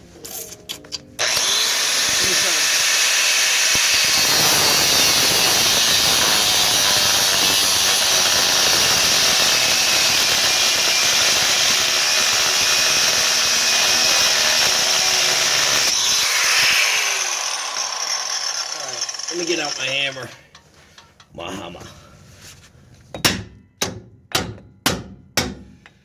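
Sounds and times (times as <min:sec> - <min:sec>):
angle grinder cutting steel: 0:01.2 - 0:20.6.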